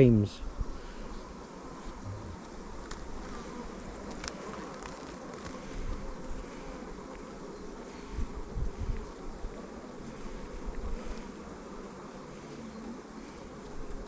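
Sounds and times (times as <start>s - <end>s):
honeybees buzzing: 0.0s - 14.0s
low bumps: 2.0s - 2.5s.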